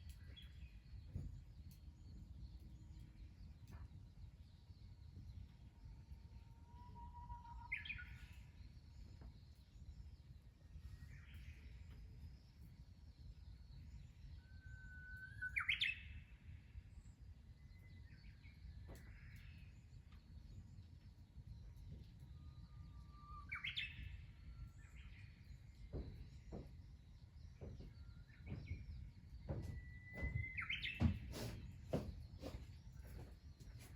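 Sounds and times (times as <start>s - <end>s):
songbird singing: 0.0s - 16.6s, 17.5s - 33.9s
faint bird chirps: 13.3s - 16.6s.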